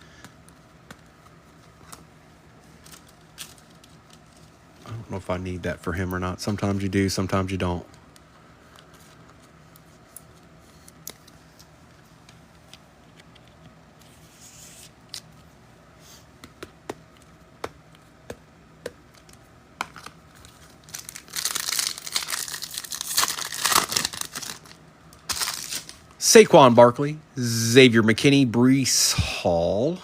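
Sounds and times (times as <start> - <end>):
wrapper tearing and crinkling: 20.0 - 26.1.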